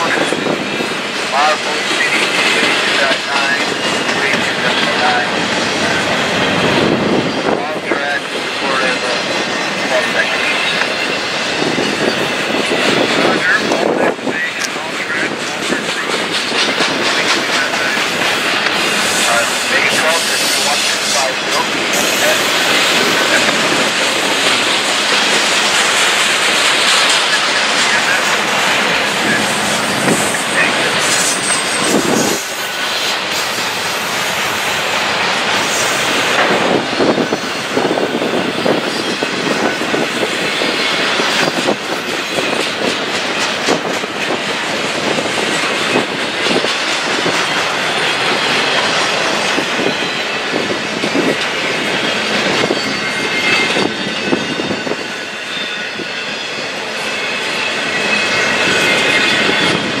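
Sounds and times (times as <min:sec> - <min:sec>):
freight train rumbling past: 0:00.0 - 1:00.0
wheels clacking over rail joints: 0:14.6 - 0:54.6.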